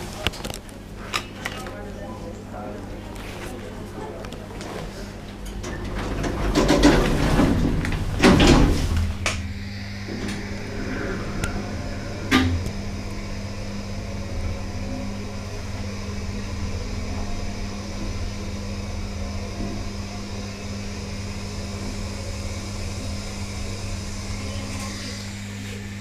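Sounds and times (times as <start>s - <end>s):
lift machinery humming: 5.2s - 26.0s
lift clattering and knocking: 5.5s - 9.4s.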